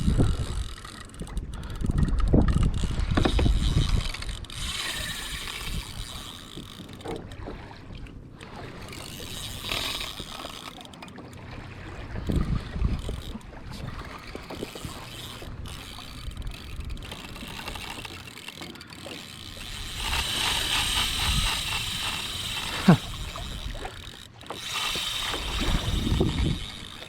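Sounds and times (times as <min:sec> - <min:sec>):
wind rumble: 0:00.0 - 0:06.3, 0:25.4 - 0:27.0
fishing reel clicking: 0:00.0 - 0:07.4, 0:08.0 - 0:11.4, 0:12.1 - 0:27.0
water against kayak: 0:00.0 - 0:27.0.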